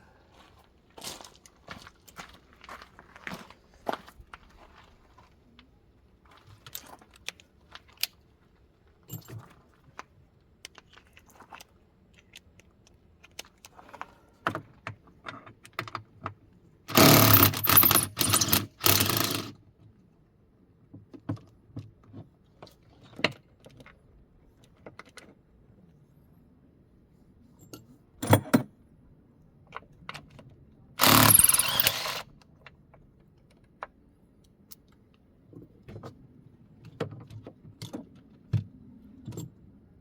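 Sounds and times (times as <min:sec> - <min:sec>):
metal tools clinking: 0:16.9 - 0:19.5, 0:31.0 - 0:32.2.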